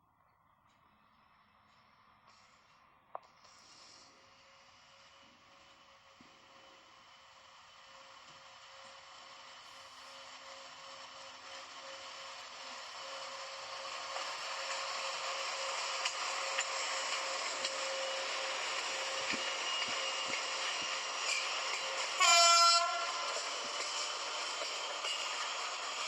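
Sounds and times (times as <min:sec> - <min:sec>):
train rail and wheel noise: 0:00.2 - 0:26.0
train horn blast: 0:22.1 - 0:23.6.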